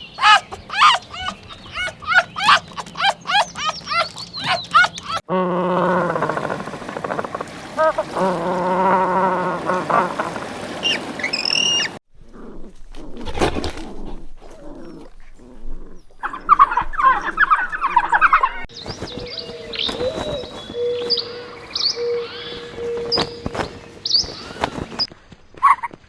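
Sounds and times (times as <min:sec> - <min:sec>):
wavering pitched animal call: 0:00.0 - 0:12.0.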